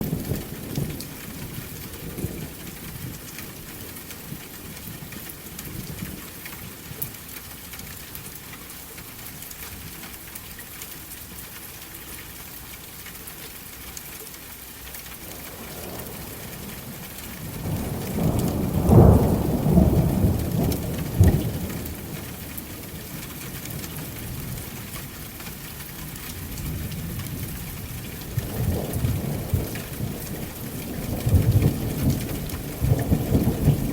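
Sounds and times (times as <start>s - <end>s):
steady rain: 0.0s - 33.9s
thunder rumbling: 15.2s - 24.8s, 26.4s - 33.9s.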